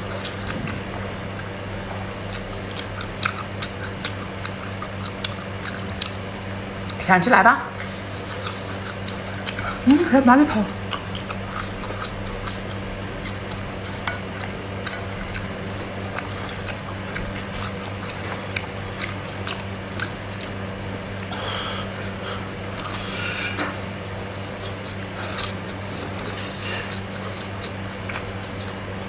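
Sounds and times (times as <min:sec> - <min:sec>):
chewing clicks: 0:02.3 - 0:07.0, 0:07.8 - 0:09.8, 0:10.7 - 0:20.6, 0:22.7 - 0:29.0.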